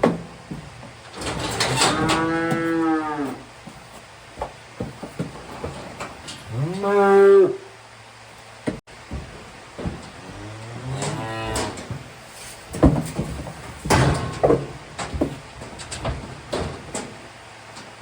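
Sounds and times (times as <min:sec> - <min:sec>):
calves bawling: 0:09.0 - 0:18.0.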